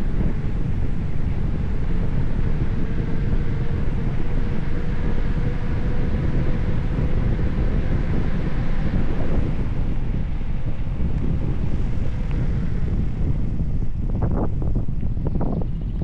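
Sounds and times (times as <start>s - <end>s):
faint steady hum: 0.0s - 16.0s
wind buffeting microphone: 0.0s - 16.0s.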